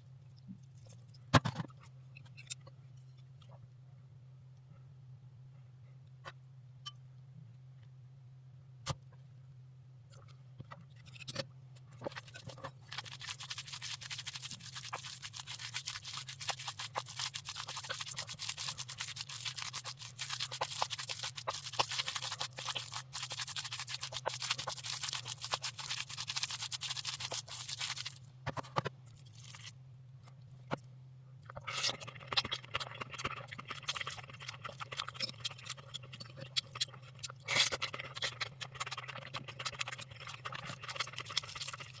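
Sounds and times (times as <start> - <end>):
food being stirred in a bowl: 12.0 - 29.7, 31.5 - 42.0.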